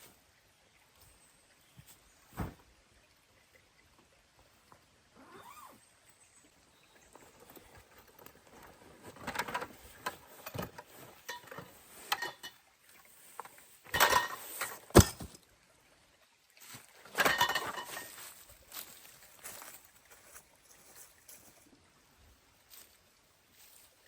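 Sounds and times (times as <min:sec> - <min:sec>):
rustling and handling noises: 0:16.6 - 0:21.7, 0:22.7 - 0:24.0.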